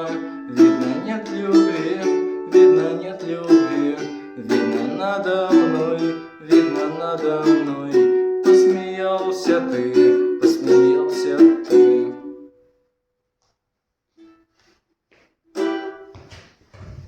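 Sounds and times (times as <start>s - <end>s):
strummed string instrument chords: 0.0s - 12.5s.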